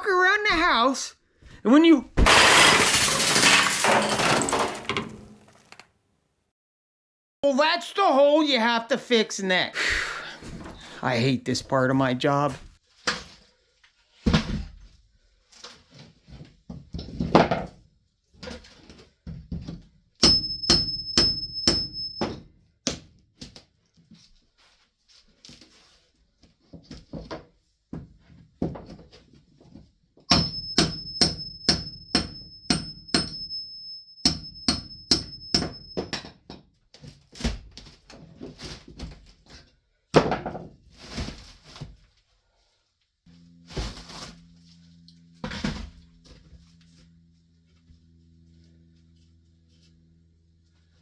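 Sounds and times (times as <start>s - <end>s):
hammer blows with metallic ring: 20.2s - 22.4s, 30.3s - 36.1s
low steady hum: 43.3s - 51.0s.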